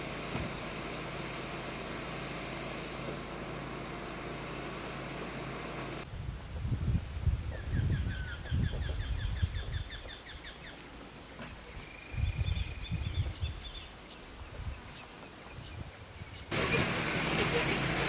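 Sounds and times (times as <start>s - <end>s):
birds chirping: 7.6s - 18.0s.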